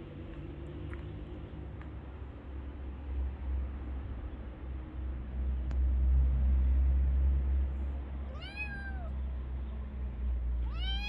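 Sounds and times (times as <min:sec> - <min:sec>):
cat meowing: 0:08.3 - 0:09.2, 0:10.6 - 0:11.0.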